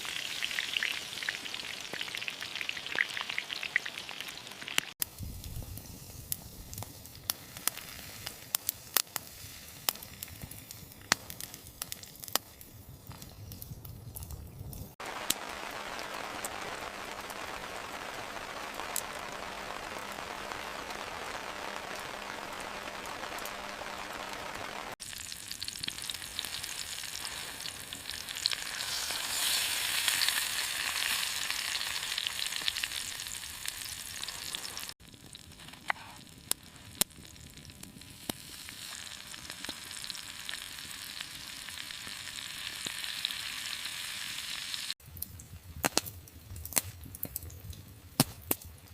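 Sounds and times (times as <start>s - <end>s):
crackling hiss: 0.0s - 48.9s
sharp pops: 48.2s - 48.7s.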